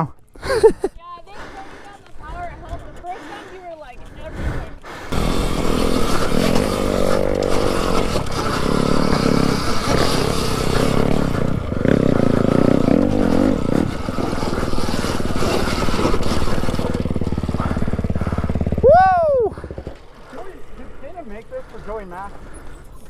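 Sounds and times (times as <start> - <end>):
dirt bike motor revving: 4.7 - 22.7
scraping and clattering: 5.1 - 18.0.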